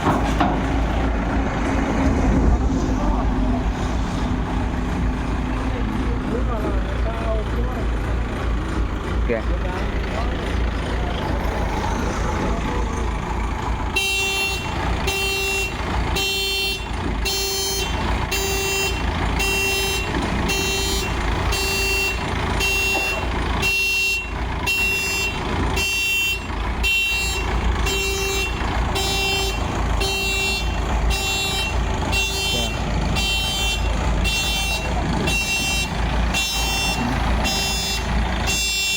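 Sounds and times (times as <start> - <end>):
diesel engine rumbling: 0.0 - 38.9
vehicle reverse warning beeps: 14.0 - 38.9.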